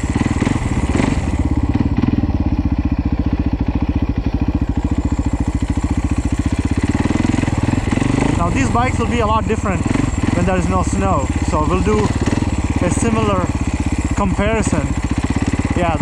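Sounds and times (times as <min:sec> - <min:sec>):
dirt bike engine at low revs: 0:00.0 - 0:16.0.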